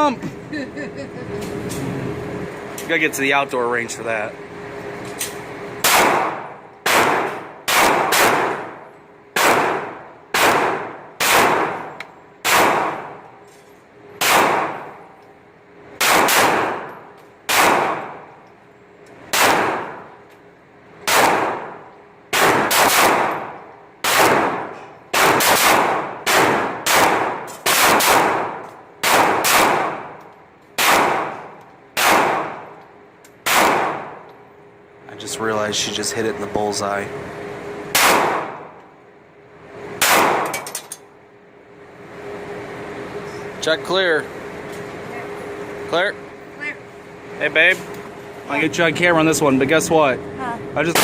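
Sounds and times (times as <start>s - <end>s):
pistol shots echoing indoors: 5.8s - 13.2s, 14.2s - 14.8s, 16.0s - 16.9s, 17.5s - 18.2s, 19.3s - 20.1s, 21.0s - 30.1s, 30.8s - 32.7s, 33.4s - 34.2s, 37.9s - 38.7s, 40.0s - 40.6s.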